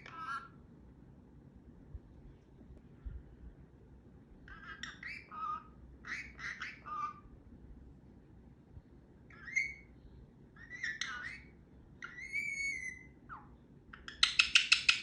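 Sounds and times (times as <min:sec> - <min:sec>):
parrot whistling and chattering: 0:04.5 - 0:07.2, 0:09.3 - 0:09.9, 0:10.6 - 0:15.0.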